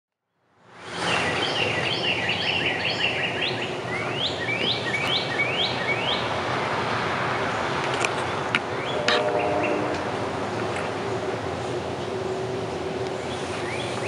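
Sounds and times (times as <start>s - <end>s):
outdoor background noise: 0.2s - 14.0s
songbird singing: 1.1s - 6.4s, 8.3s - 14.0s.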